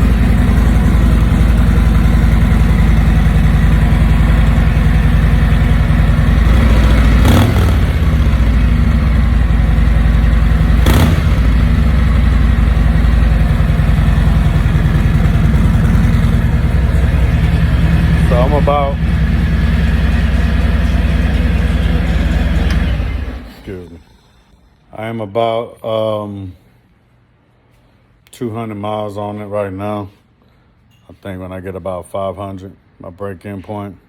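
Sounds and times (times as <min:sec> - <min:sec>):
motorcycle throttle blips: 0:00.0 - 0:23.5
motorcycle engine idling: 0:00.0 - 0:23.7.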